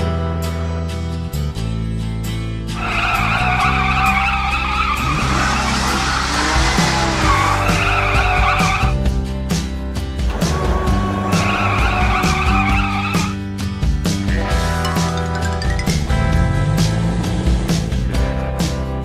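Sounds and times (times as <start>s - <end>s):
background music: 0.0s - 19.0s
cartoon tyre squeal: 2.8s - 9.0s, 11.3s - 13.4s.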